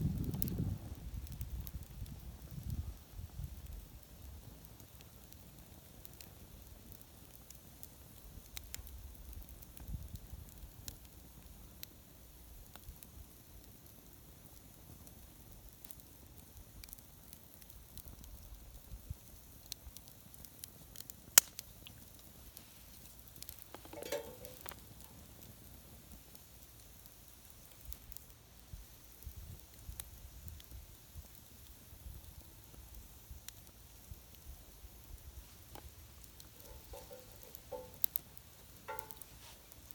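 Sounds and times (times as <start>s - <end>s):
campfire crackling and popping: 0.0s - 39.9s
fire hissing: 0.0s - 39.9s.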